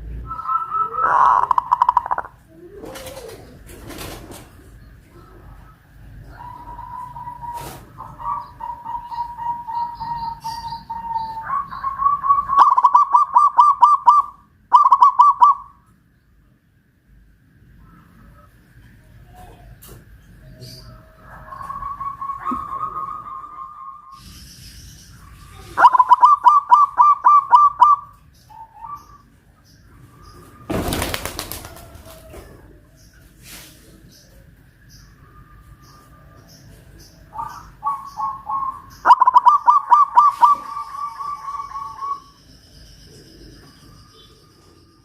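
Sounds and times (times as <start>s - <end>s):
dove cooing: 0.0s - 15.8s, 20.4s - 24.2s, 25.6s - 29.3s, 37.2s - 42.4s.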